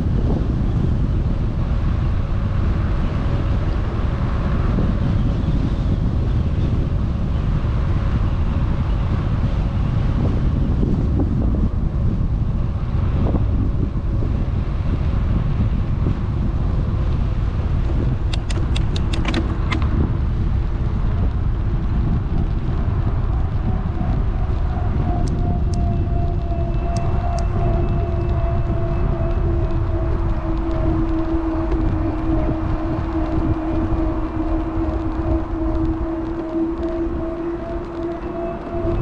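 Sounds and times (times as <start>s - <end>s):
wind buffeting microphone: 0.0s - 39.0s
sharp clicks: 18.3s - 19.9s
faint steady tones: 24.1s - 39.0s.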